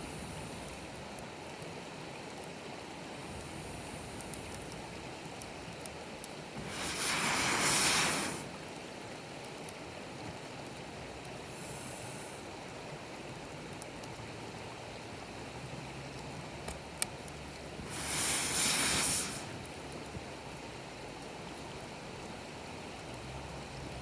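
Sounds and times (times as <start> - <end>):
campfire hissing: 0.0 - 23.4
fire crackles: 0.0 - 24.0
sharp pop of fire: 17.8 - 19.6.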